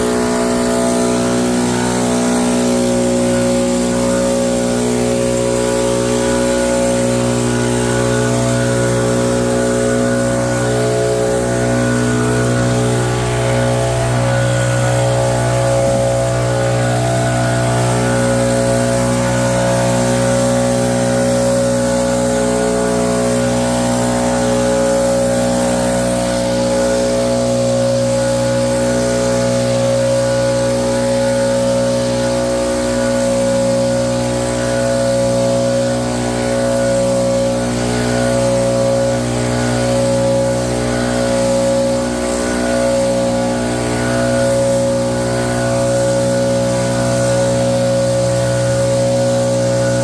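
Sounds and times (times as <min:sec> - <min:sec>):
small engine running: 0:00.0 - 0:50.0.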